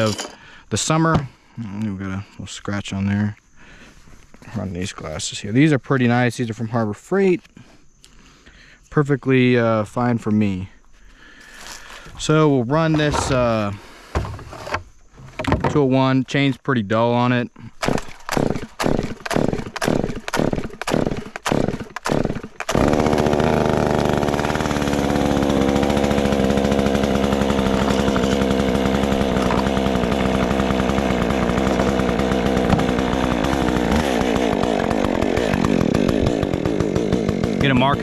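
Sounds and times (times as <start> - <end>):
chainsaw starter cord pulls: 0.0 - 0.4, 11.5 - 15.8, 17.7 - 38.0
chainsaw engine running and revving: 18.0 - 38.0.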